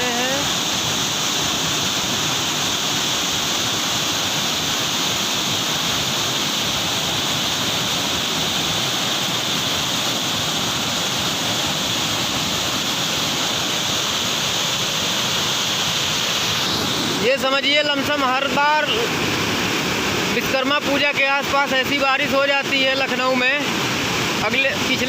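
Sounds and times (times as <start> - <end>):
rainwater rushing: 0.0 - 25.0.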